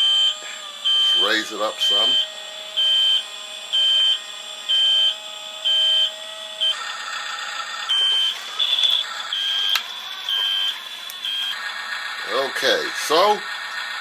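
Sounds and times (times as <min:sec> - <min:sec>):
small electric motor whirring: 0:00.0 - 0:14.0
high electronic beeps: 0:03.8 - 0:11.6.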